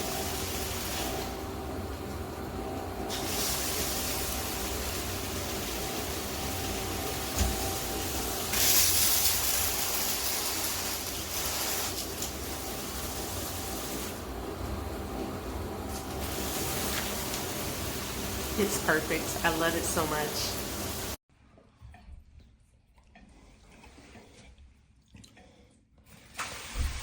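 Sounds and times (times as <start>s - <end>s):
shower head spraying water: 0.0s - 1.6s, 3.0s - 14.3s, 15.2s - 21.2s.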